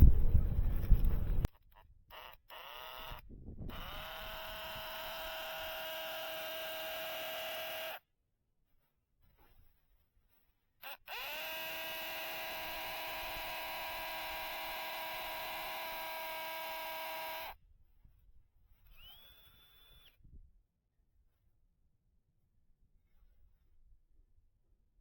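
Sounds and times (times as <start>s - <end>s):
small electric motor running: 1.3s - 8.0s, 10.8s - 17.6s, 18.9s - 20.2s.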